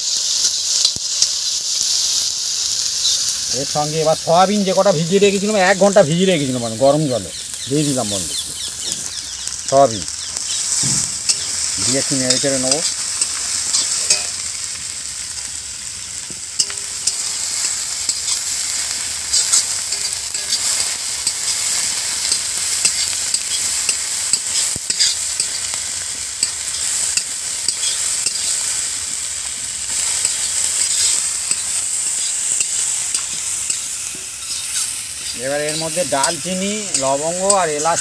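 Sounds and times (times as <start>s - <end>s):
food sizzling in oil: 0.0s - 38.0s
spatula scraping a pan: 16.6s - 25.6s, 26.4s - 28.7s, 29.9s - 38.0s.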